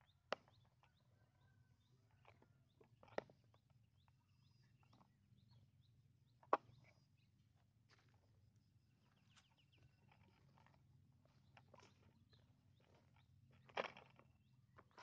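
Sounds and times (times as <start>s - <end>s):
faint bird chirps: 0.0s - 8.1s, 8.7s - 15.0s.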